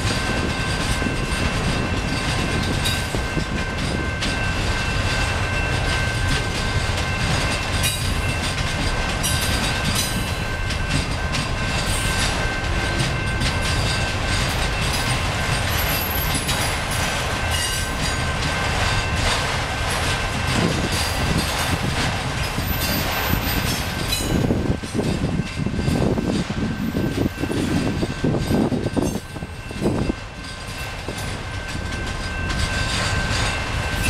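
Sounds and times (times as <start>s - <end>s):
high whine from train wheels: 0.0s - 34.0s
rumble of train wheels on rail: 0.0s - 34.0s.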